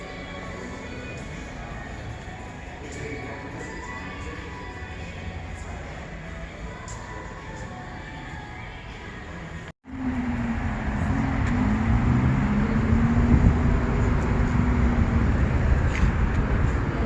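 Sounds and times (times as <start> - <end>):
quiet background music: 0.0 - 17.0
car engine running: 9.9 - 17.0.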